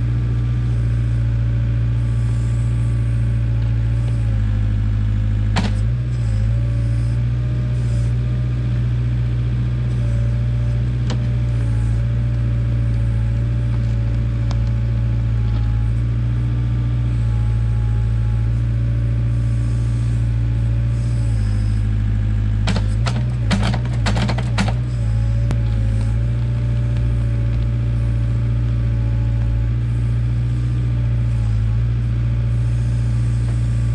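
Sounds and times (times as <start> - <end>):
backhoe engine running: 0.0 - 33.9
sharp knocks: 5.6 - 5.8, 22.7 - 24.8.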